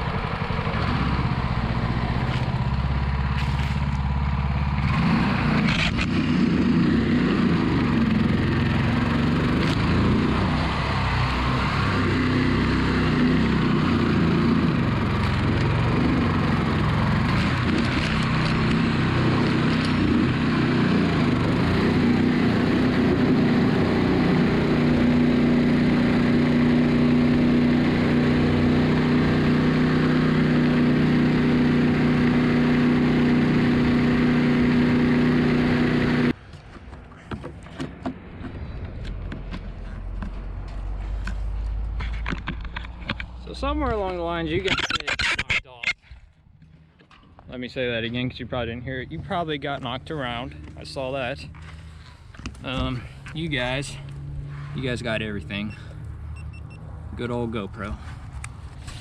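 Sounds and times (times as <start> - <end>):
mud motor engine at high throttle: 0.0 - 45.3, 47.9 - 59.0.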